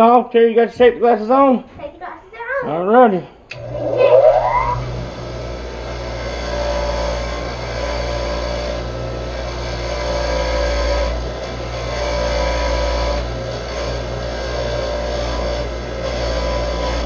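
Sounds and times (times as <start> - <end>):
hand-held power tool running: 3.5 - 17.0.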